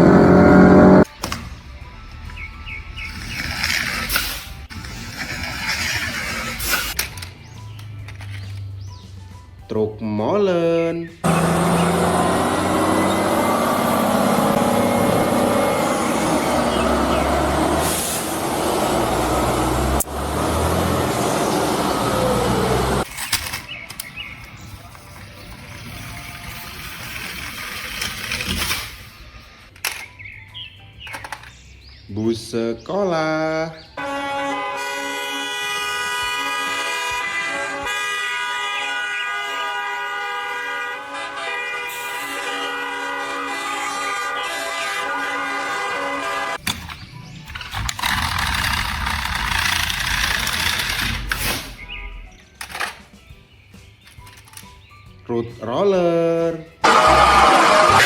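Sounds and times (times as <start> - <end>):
vehicle horn long blast: 0.0 - 1.0, 34.0 - 46.6, 56.8 - 58.0
truck engine rumbling: 0.0 - 1.1, 11.2 - 29.5, 39.6 - 52.0, 56.8 - 58.0.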